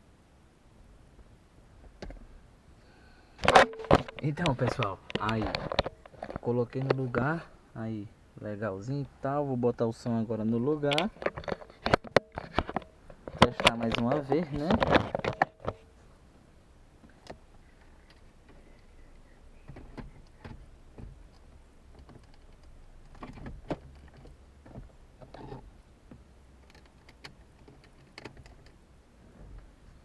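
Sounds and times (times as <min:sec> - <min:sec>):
faint low hum: 0:00.0 - 0:30.0
light plastic clicks and knocks: 0:10.9 - 0:15.9, 0:17.0 - 0:28.8.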